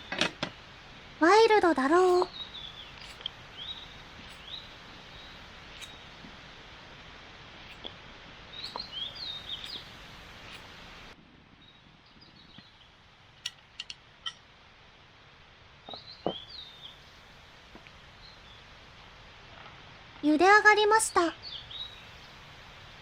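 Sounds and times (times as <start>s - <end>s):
small birds chirping: 0.0s - 13.9s, 15.8s - 23.0s
steady hiss: 0.0s - 23.0s
sharp clicks: 2.0s - 6.4s, 8.6s - 11.2s.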